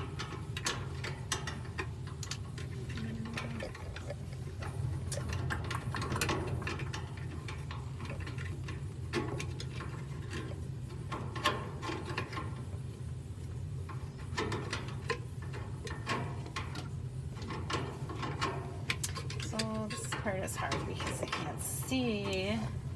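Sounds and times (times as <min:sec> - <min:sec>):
clicks and rattles of parts handled: 0:00.0 - 0:12.7, 0:13.9 - 0:21.6
steady low hum: 0:00.0 - 0:22.9.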